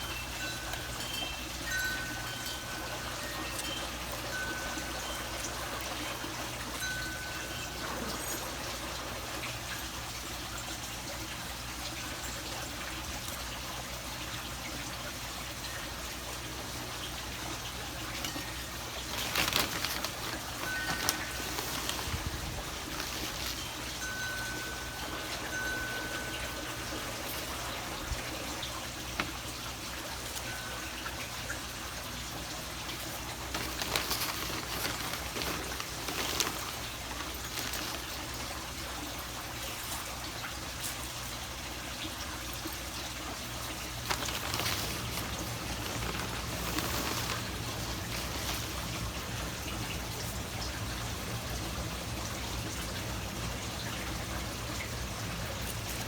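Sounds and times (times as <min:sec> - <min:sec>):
wind chimes ringing: 0:00.0 - 0:10.0, 0:17.9 - 0:40.2, 0:43.9 - 0:50.3
rustle: 0:00.0 - 0:56.0
water trickling: 0:00.0 - 0:56.0.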